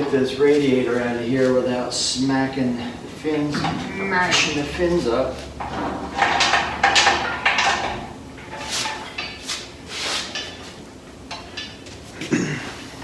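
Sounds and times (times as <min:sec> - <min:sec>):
metal scraping and clunking: 0:02.7 - 0:10.8.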